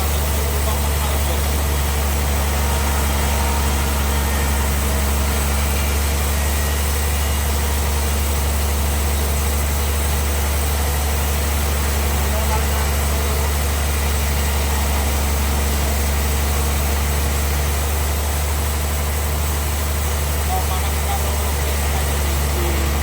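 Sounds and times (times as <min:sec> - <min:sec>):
bandsaw machinery humming: 0:00.0 - 0:23.0.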